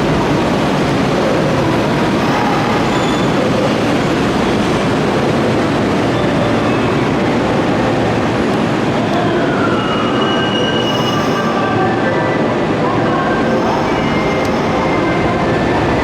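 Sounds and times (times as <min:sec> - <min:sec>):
steady high tones: 0:13.1 - 0:15.8
electric train running: 0:13.2 - 0:16.0
falling whine: 0:13.3 - 0:16.0.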